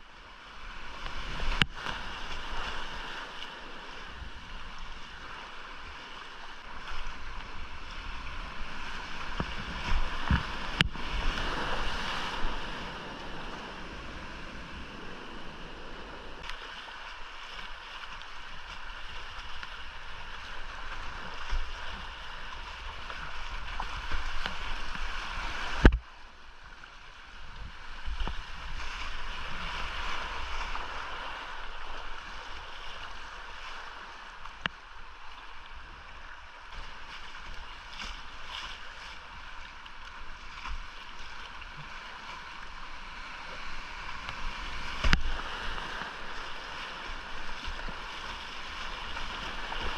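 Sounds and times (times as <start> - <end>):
low water rumble: 0.0 - 49.9
whitewater rushing: 0.9 - 26.0, 41.1 - 49.9.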